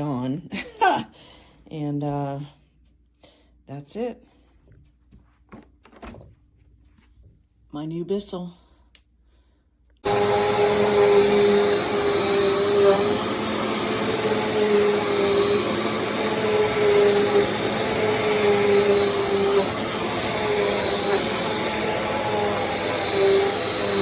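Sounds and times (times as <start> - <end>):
vacuum cleaner running: 10.0 - 24.0.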